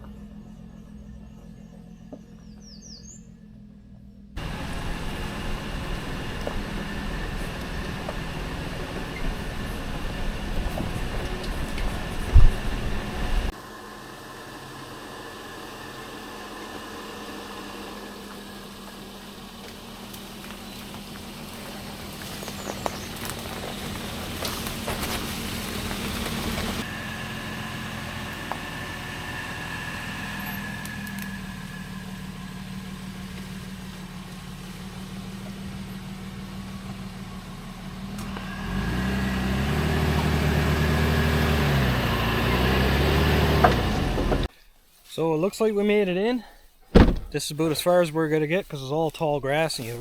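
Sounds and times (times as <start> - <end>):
vehicle engine running: 0.0 - 44.5, 46.9 - 50.0
gritty crunching: 19.7 - 26.8, 43.8 - 50.0.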